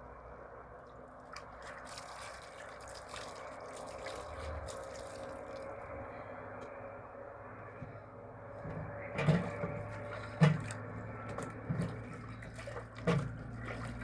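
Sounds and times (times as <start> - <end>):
water dripping and trickling: 0.8 - 5.8, 9.2 - 14.0.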